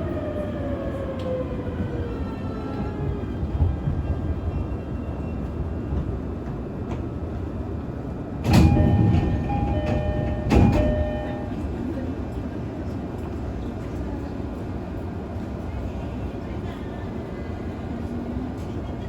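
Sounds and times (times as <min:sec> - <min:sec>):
train low rumble: 0:00.0 - 0:19.0.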